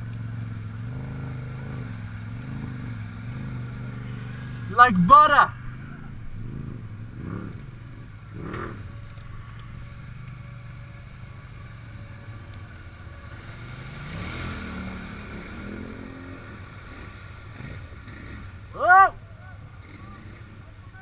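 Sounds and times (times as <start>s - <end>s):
off-road vehicle engine revving: 0.0s - 21.0s.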